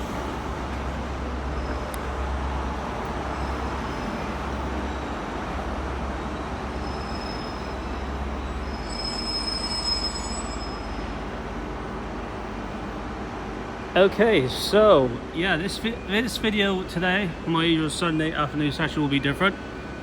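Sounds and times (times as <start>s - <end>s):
diesel train engine rumbling: 0.0s - 20.0s
faint high-pitched squeal: 6.3s - 11.2s.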